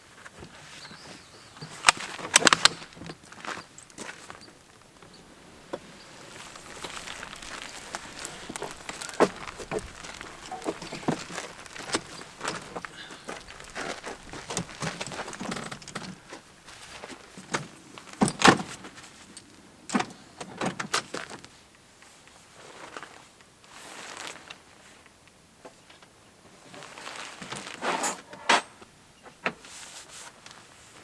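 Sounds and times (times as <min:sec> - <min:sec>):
objects being handled: 0:01.8 - 0:16.4.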